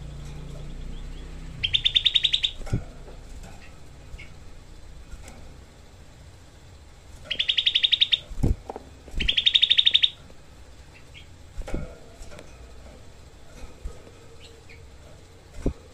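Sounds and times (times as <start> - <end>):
bulbul harsh trills: 0.0 - 3.0, 7.3 - 8.4.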